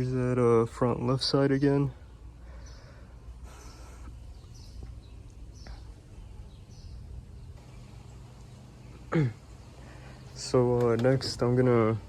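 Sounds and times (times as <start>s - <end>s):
low background rumble: 0.0s - 12.0s
faint bird chirps: 1.6s - 10.7s.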